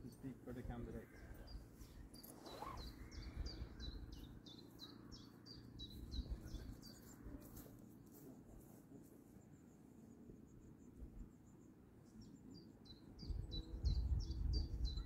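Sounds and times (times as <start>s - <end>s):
small bird singing: 0.0s - 7.3s, 11.4s - 15.0s.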